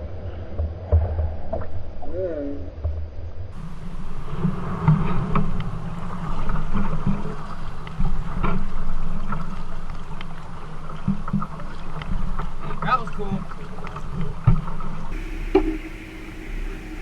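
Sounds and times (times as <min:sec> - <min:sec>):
water rushing against hull: 0:03.6 - 0:17.0
short knocks: 0:15.2 - 0:17.0.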